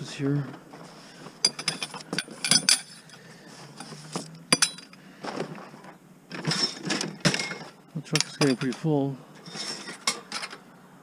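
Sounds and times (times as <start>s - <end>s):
scrap metal clinking: 1.4s - 5.0s, 5.6s - 8.8s, 9.4s - 10.6s.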